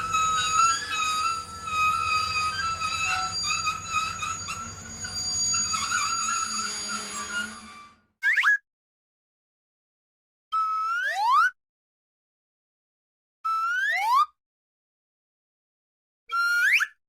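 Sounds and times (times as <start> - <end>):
whistling wind: 0.0 - 7.9.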